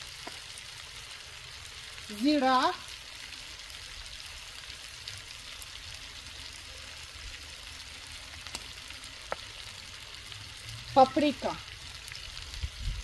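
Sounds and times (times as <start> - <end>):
oil popping: 0.0 - 1.6, 8.2 - 10.8
food sizzling in hot oil: 0.0 - 13.0.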